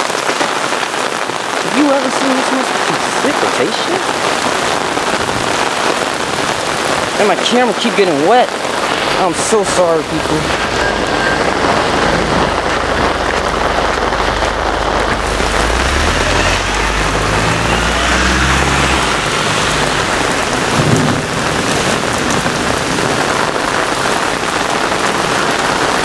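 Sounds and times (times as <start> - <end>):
heavy rain pouring: 0.0 - 26.0
low thunder rumble: 8.5 - 26.0.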